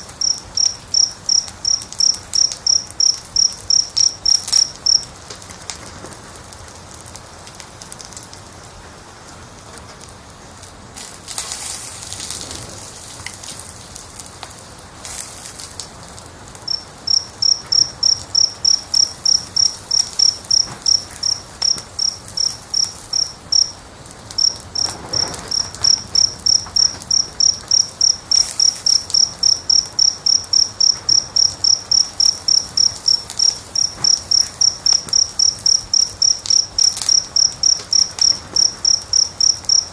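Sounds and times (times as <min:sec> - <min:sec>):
cricket chirping: 0:00.0 - 0:05.2, 0:16.4 - 0:39.9
fire crackling and popping: 0:00.0 - 0:39.9.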